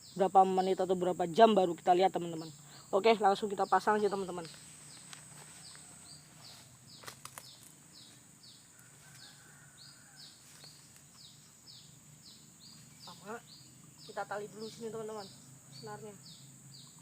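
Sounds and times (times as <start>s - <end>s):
steady high-pitched whine: 0.0s - 17.0s
high falling chirping call: 2.3s - 8.7s.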